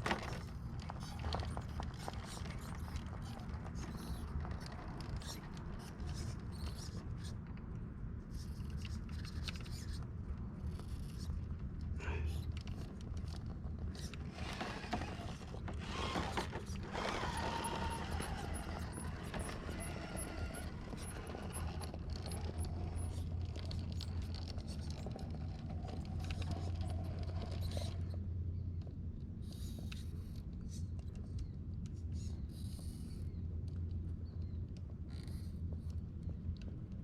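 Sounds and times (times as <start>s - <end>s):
tyres scraping on rock: 14.1s - 23.0s
electric motor whine: 14.4s - 22.8s.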